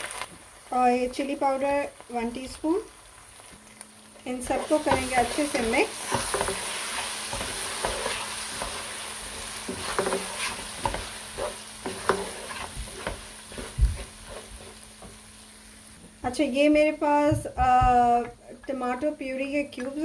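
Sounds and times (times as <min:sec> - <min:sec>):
food sizzling in hot oil: 0:00.0 - 0:17.1
wooden spoon scraping a pot: 0:04.4 - 0:15.2.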